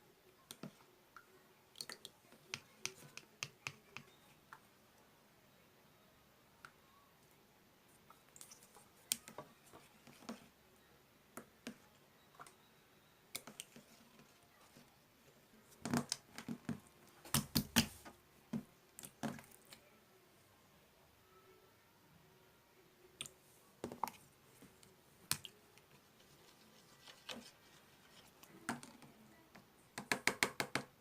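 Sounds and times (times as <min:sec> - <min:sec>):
slime clicking and popping: 0:17.3 - 0:17.9.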